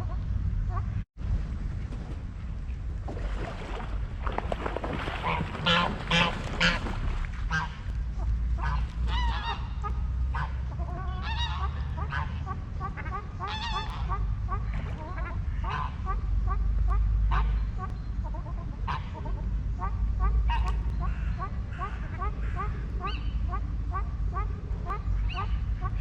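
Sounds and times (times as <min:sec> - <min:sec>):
steady low rumble: 0:00.0 - 0:26.0
geese honking: 0:05.2 - 0:26.0.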